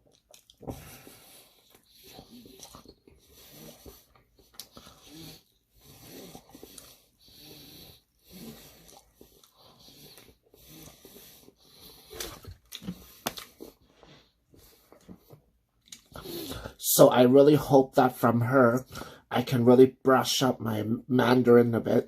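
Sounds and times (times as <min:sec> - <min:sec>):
chewing: 0:00.0 - 0:07.2, 0:07.9 - 0:13.9, 0:14.5 - 0:16.2
breathing through the nose: 0:00.7 - 0:04.1, 0:04.7 - 0:14.9, 0:18.9 - 0:19.3.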